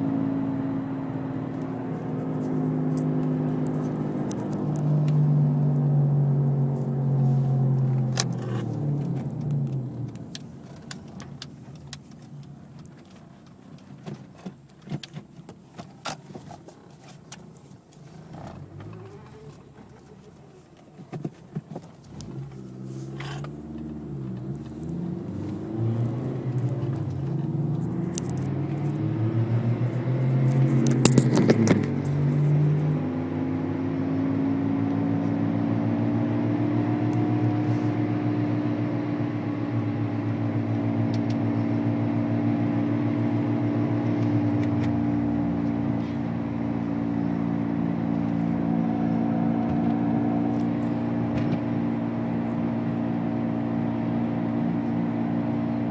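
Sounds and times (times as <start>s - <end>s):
car accelerating: 0.0s - 14.0s, 18.0s - 20.8s, 21.6s - 55.9s
car cruising drone: 0.0s - 55.9s.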